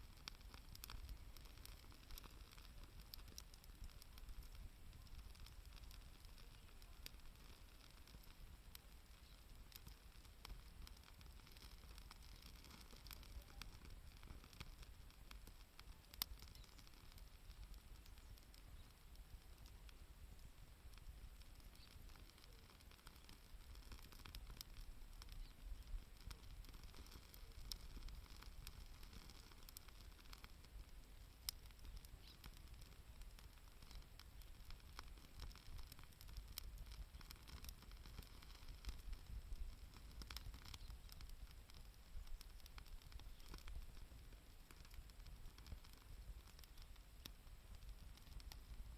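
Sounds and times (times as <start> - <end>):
sharp pops: 0.0 - 48.7
campfire crackling: 0.0 - 48.9.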